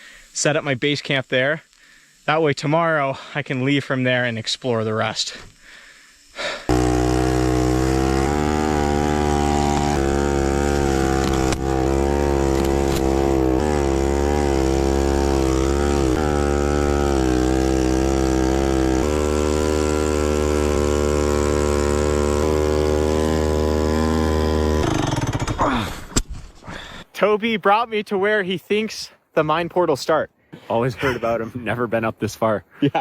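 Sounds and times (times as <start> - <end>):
motorcycle engine revving: 6.7 - 25.6.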